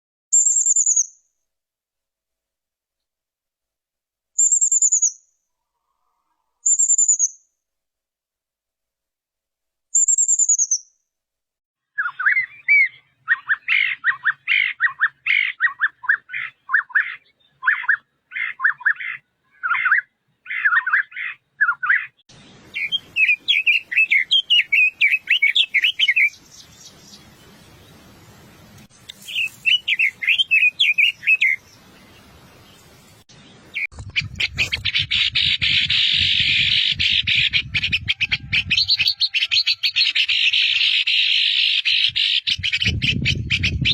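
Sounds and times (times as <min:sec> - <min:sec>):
nuthatch chirping: 0:10.0 - 0:10.9, 0:12.0 - 0:27.3, 0:29.1 - 0:31.8
dense bird chatter: 0:12.0 - 0:43.9.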